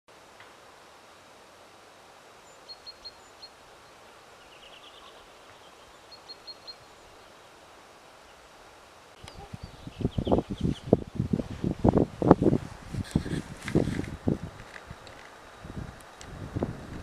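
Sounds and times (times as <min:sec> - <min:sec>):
faint outdoor hiss: 0:00.1 - 0:17.0
small songbird chirping: 0:02.4 - 0:07.6, 0:09.2 - 0:11.3.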